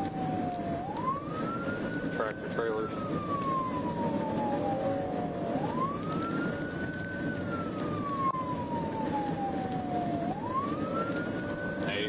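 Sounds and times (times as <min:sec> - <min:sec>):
car road and engine noise: 0:00.0 - 0:12.0
police siren wailing: 0:00.0 - 0:12.0.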